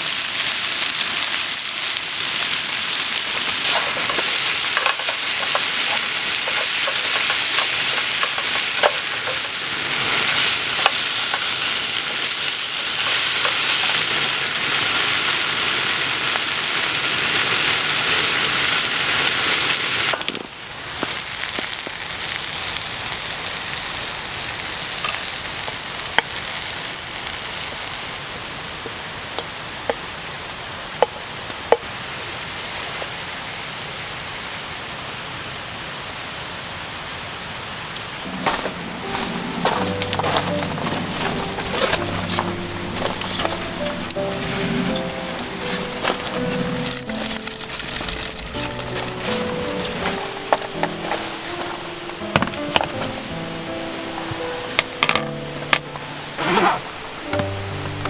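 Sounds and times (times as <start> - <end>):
food sizzling in a pan: 0.0 - 30.8, 37.1 - 58.0
crackles and pops: 18.7 - 28.5.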